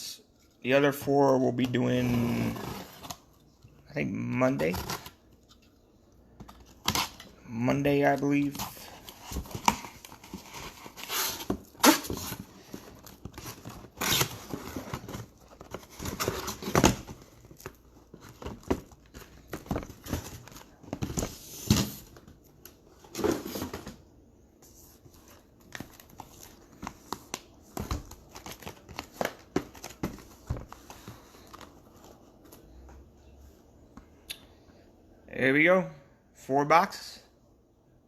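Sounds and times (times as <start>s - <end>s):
cardboard rustling: 8.0s - 24.0s, 24.6s - 32.8s.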